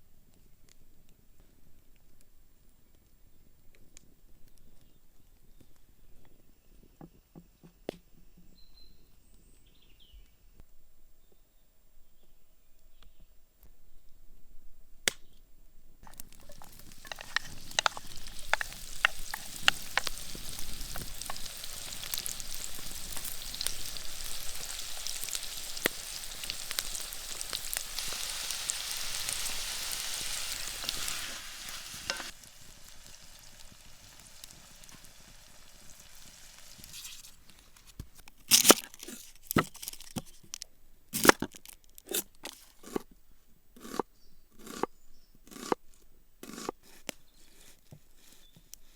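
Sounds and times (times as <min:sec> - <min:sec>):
food sizzling in a pan: 0:16.1 - 0:37.9.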